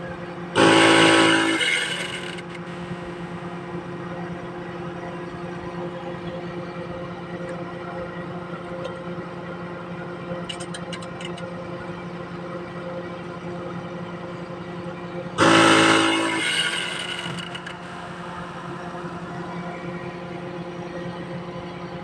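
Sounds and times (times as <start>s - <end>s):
mechanical hum: 0.0s - 22.0s
loud horn-like blast: 0.6s - 2.5s, 15.4s - 17.7s.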